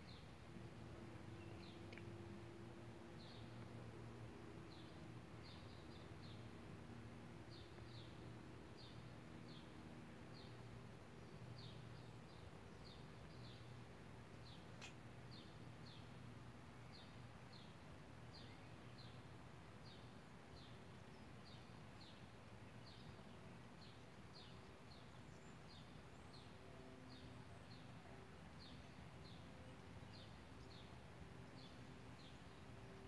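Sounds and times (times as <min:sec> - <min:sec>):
low steady hum: 0:00.0 - 0:33.0
small bird chirping: 0:14.4 - 0:16.1.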